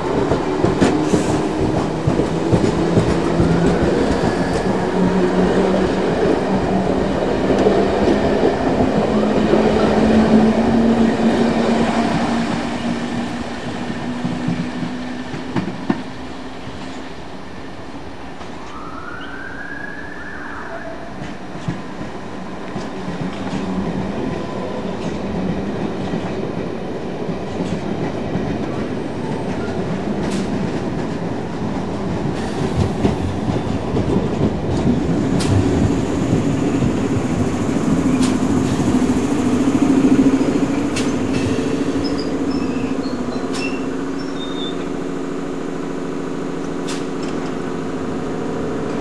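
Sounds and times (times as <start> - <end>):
train wheels clicking over rail joints: 0.0 - 10.9, 24.9 - 44.9, 46.6 - 47.7
train standing with steady hum: 0.0 - 49.0.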